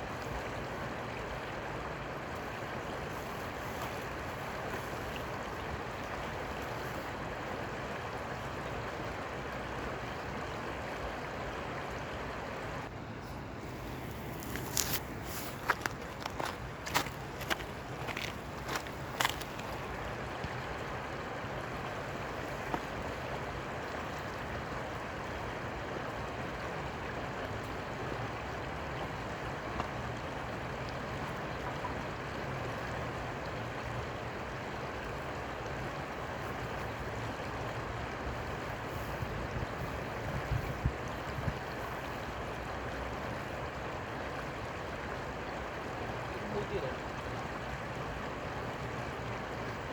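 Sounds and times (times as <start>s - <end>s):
flowing water rushing: 0.0s - 49.9s.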